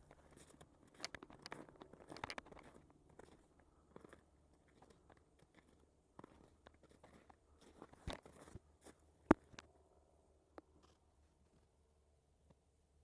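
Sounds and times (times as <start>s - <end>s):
faint crunches and clicks: 0.0s - 9.7s.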